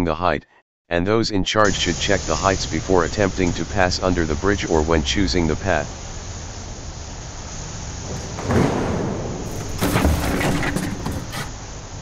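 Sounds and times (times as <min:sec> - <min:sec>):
steady noisy background: 0:01.7 - 0:12.0
loud crashing: 0:08.0 - 0:11.5.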